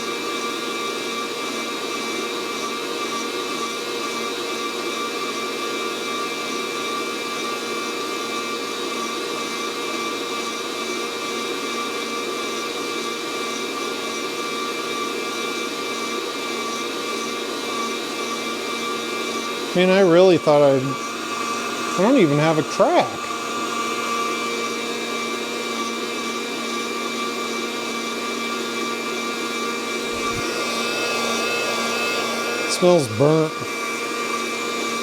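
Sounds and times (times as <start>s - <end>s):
coffee roaster fan whirring: 29.9s - 35.0s.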